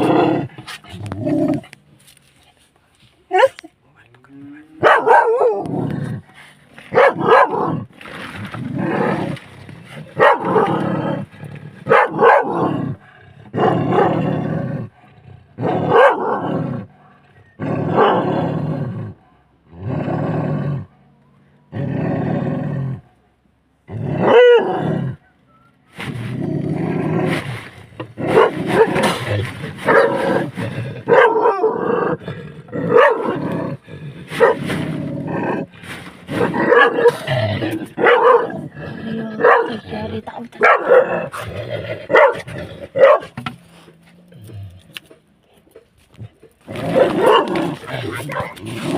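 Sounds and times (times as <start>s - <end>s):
big cat roaring and growling: 0.0s - 1.8s, 4.7s - 16.9s, 17.5s - 20.9s, 21.7s - 23.1s, 23.8s - 25.2s, 26.1s - 43.0s, 46.6s - 48.9s
dog barking: 3.3s - 3.7s, 4.8s - 5.7s, 6.9s - 7.8s, 10.2s - 10.8s, 11.9s - 12.8s, 13.6s - 14.2s, 15.8s - 17.2s, 18.0s - 18.3s, 19.1s - 19.6s, 24.2s - 25.6s, 28.3s - 29.2s, 29.8s - 30.2s, 31.1s - 31.8s, 32.9s - 33.4s, 34.4s - 34.7s, 36.4s - 37.3s, 38.0s - 38.7s, 39.4s - 39.8s, 40.6s - 41.3s, 42.1s - 43.4s, 47.0s - 47.6s.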